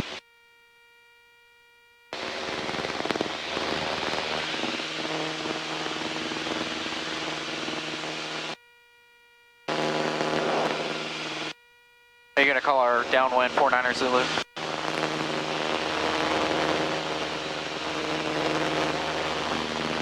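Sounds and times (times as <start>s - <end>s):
radio static hiss: 0.0s - 0.2s, 2.2s - 8.6s, 9.7s - 11.6s, 12.4s - 20.0s
faint electronic buzz: 0.0s - 20.0s
low hum: 9.7s - 11.6s, 12.4s - 20.0s.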